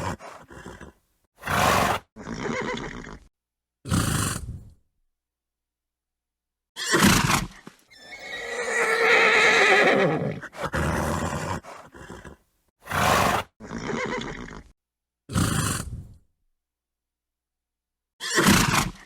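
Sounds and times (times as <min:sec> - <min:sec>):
horse snorting: 0:00.0 - 0:03.3, 0:07.0 - 0:14.7
horse whinnying: 0:07.9 - 0:12.4.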